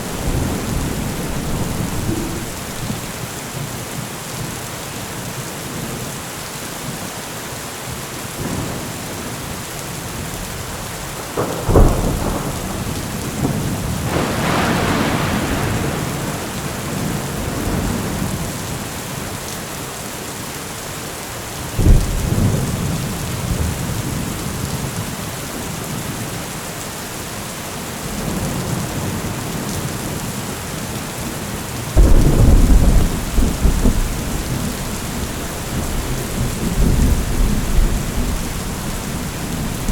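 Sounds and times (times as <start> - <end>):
thunder claps and rumbling: 0.0 - 3.7, 11.3 - 18.9, 21.8 - 25.0, 32.0 - 39.9
steady heavy rain: 0.0 - 39.9.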